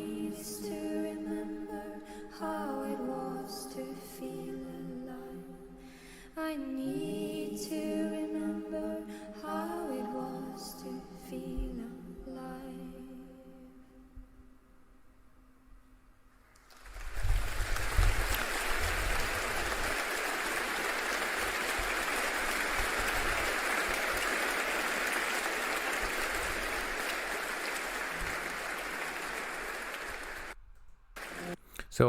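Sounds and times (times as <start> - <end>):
audience applauding: 16.6 - 30.6, 31.2 - 31.6.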